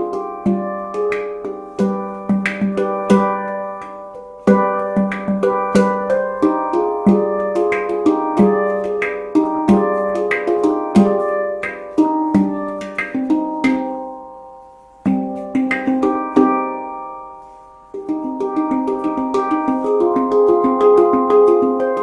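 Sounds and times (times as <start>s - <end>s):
handpan played by hand: 0.0s - 22.0s.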